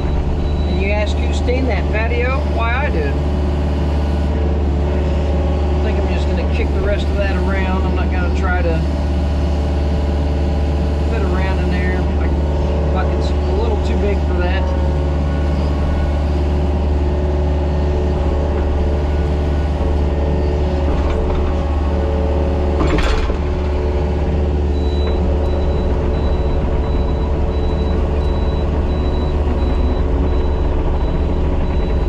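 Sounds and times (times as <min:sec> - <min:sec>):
diesel engine running steadily: 0:00.0 - 0:32.0.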